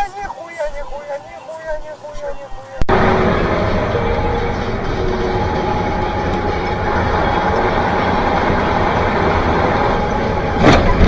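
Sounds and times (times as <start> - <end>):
vehicle road and engine noise: 2.8 - 11.0.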